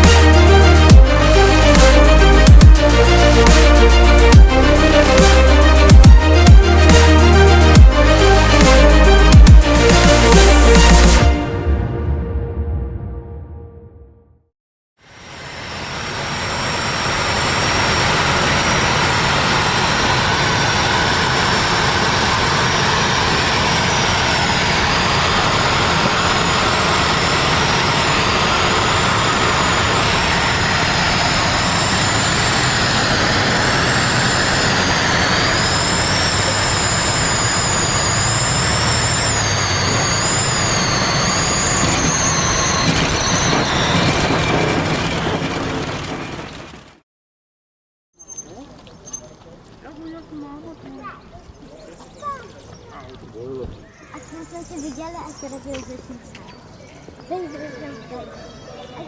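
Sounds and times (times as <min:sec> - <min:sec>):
high wavering whine: 0:00.0 - 0:12.6, 0:15.1 - 0:44.9
aircraft engine roaring: 0:00.0 - 0:13.0, 0:15.0 - 0:47.0.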